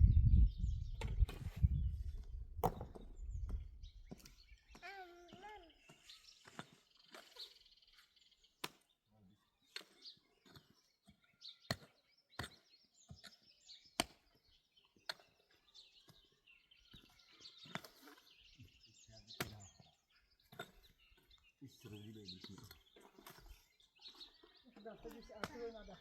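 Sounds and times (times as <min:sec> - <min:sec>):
sharp knocks on wood or stone: 0:02.6 - 0:03.1
faint bird chirps: 0:03.1 - 0:26.0.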